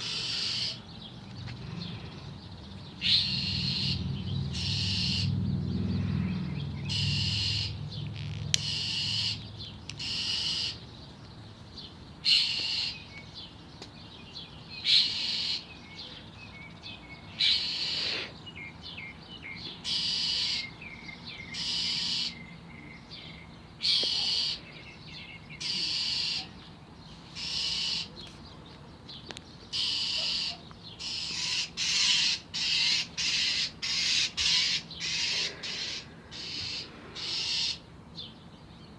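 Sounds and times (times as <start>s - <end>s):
bird giving harsh hissing calls: 0.0s - 0.8s, 3.0s - 5.3s, 6.9s - 7.8s, 8.6s - 9.4s, 10.0s - 10.8s, 12.2s - 13.0s, 14.8s - 15.7s, 17.4s - 18.4s, 19.8s - 20.6s, 21.6s - 22.4s, 23.8s - 24.6s, 25.6s - 26.5s, 27.2s - 28.1s, 29.7s - 37.9s.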